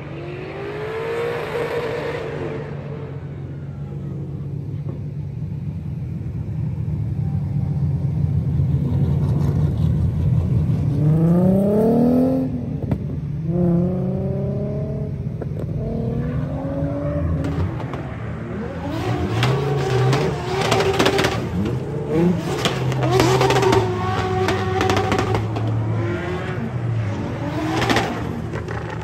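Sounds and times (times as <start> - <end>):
car engines revving: 0.0 - 29.0.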